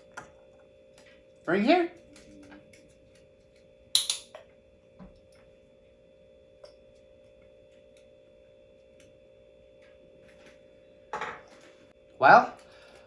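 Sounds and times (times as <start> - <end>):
faint steady hum: 0.0 - 13.0
objects knocking on tabletop: 11.1 - 11.6.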